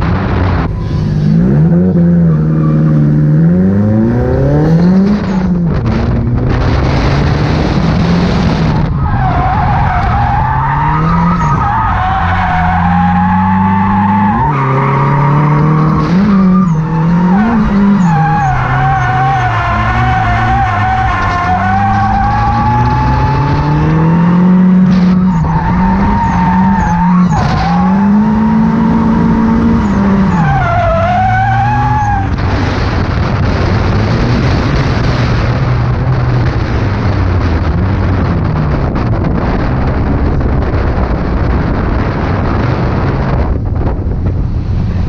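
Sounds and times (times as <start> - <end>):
car engine revving: 0.0 - 45.0.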